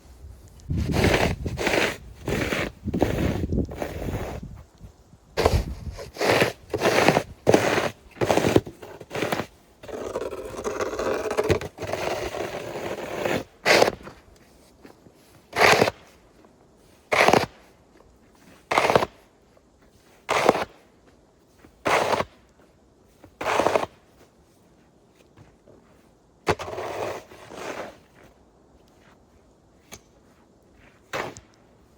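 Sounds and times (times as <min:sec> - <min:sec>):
snow shovel scraping snow: 0:00.0 - 0:04.6, 0:05.4 - 0:28.4, 0:30.2 - 0:31.9.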